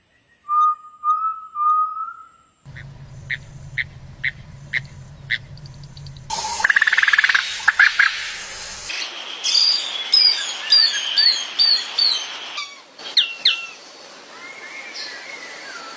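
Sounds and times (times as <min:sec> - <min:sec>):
birds chirping: 0:02.7 - 0:08.9
steady high hiss: 0:02.7 - 0:10.1.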